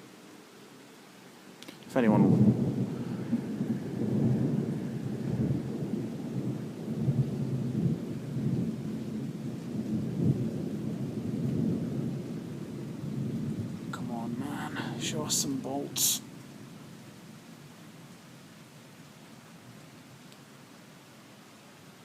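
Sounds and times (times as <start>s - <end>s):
rain falling: 0.0s - 22.0s
rolling thunder: 2.0s - 16.3s.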